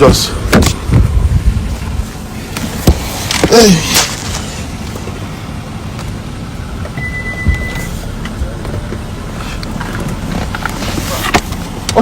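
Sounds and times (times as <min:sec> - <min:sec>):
street traffic rumble: 0:00.0 - 0:12.0
dull thump: 0:02.8 - 0:04.2
high beep: 0:07.0 - 0:08.0.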